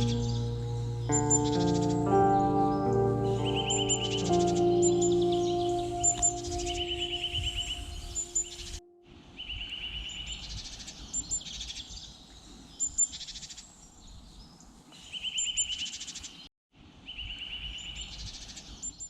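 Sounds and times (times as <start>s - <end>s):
high thin bird calls: 0.0s - 8.8s
songbirds singing: 0.0s - 8.8s.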